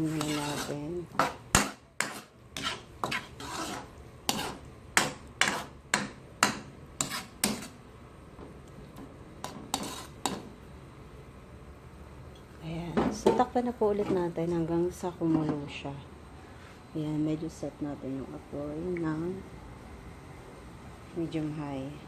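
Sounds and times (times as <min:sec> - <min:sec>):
utensil scraping a pan: 0:00.0 - 0:07.8, 0:09.4 - 0:10.4.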